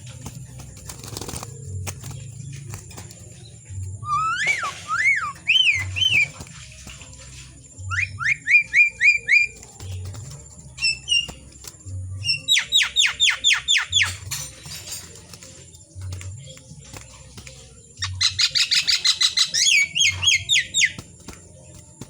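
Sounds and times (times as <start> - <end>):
starling singing whistles: 4.0 - 6.6, 7.8 - 10.0, 10.7 - 11.6, 18.0 - 21.2.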